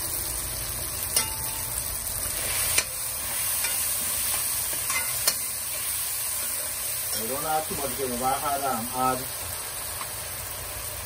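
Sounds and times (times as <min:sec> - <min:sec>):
vegetables sizzling in hot oil: 0:00.0 - 0:11.0
metal spoon stirring: 0:03.6 - 0:05.5.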